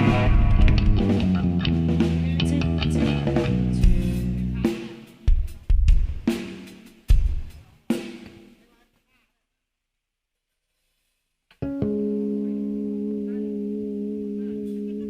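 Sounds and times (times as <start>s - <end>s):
live band playing: 0.0s - 7.5s
kick drum and cymbal hits: 3.5s - 8.5s.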